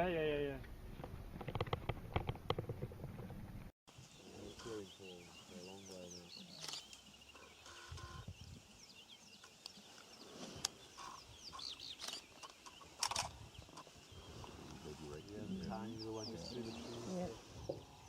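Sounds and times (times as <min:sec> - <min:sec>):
birds chirping: 0:03.9 - 0:18.0
lower clucking bird calls: 0:03.9 - 0:18.0.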